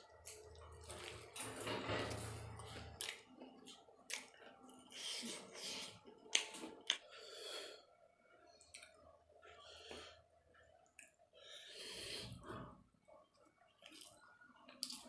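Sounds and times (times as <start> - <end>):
person chewing food: 0.0 - 1.5, 2.6 - 7.8, 8.5 - 15.0
soft breaths: 7.0 - 12.9.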